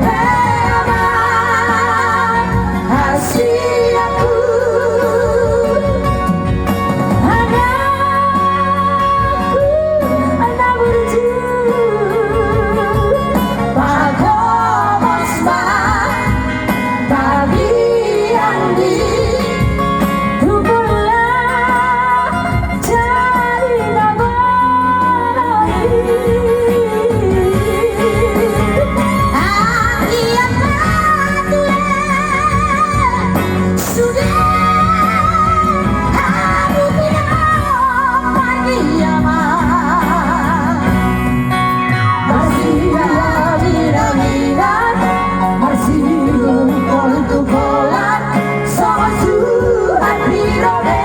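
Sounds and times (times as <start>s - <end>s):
person singing with vibrato: 0.0s - 51.0s.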